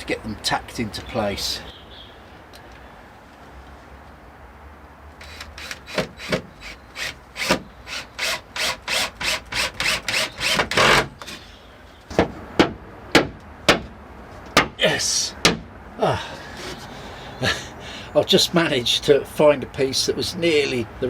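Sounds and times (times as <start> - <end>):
handsaw cutting wood: 5.2 - 11.1
sharp knocks on wood: 12.1 - 14.8, 15.4 - 15.7.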